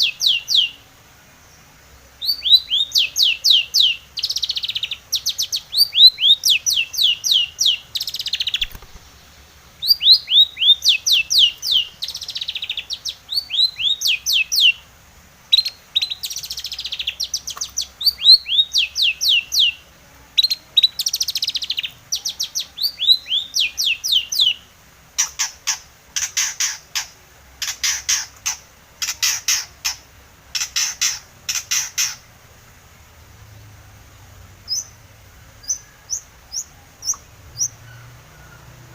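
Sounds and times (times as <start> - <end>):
bird whistled song: 0.0 - 0.8, 2.2 - 9.2, 9.8 - 14.8, 15.5 - 19.8, 20.4 - 24.6, 34.7 - 35.0, 35.6 - 38.6
harsh scratchy bird calls: 2.2 - 14.8, 20.8 - 32.3.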